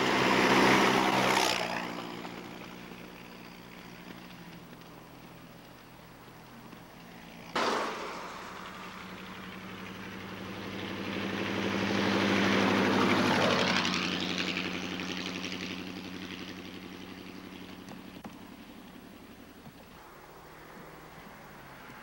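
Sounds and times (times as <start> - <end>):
car engine driving past: 7.0 - 19.1, 19.9 - 22.0.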